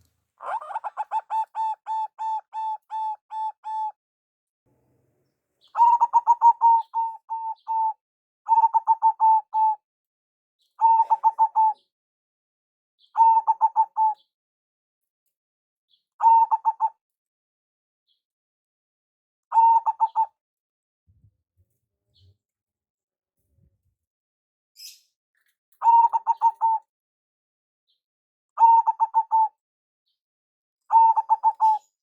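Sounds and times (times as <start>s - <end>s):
dove cooing: 0.4s - 3.9s, 5.7s - 9.7s, 10.8s - 11.8s, 13.2s - 14.2s, 16.2s - 16.9s, 19.5s - 20.3s, 25.8s - 26.8s, 28.6s - 29.5s, 30.9s - 31.9s.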